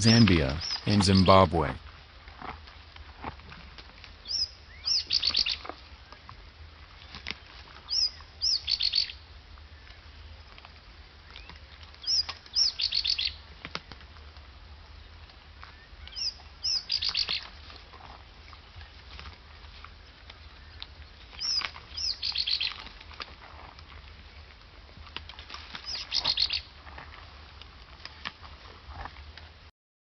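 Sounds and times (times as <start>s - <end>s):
songbird singing: 0.0s - 1.8s, 4.2s - 6.3s, 7.0s - 10.4s, 11.2s - 13.4s, 15.0s - 17.6s, 19.9s - 22.9s, 25.8s - 26.7s.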